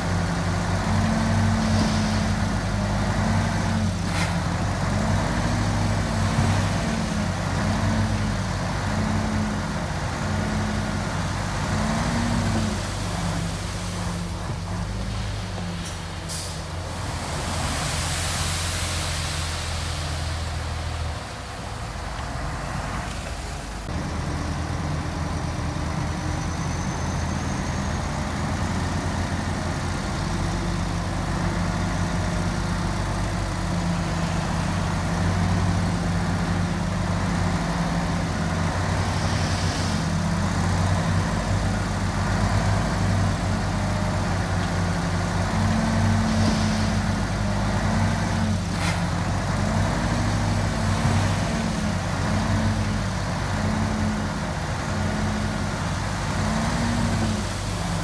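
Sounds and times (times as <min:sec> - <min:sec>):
heavy machinery diesel engine: 0:00.0 - 0:58.0.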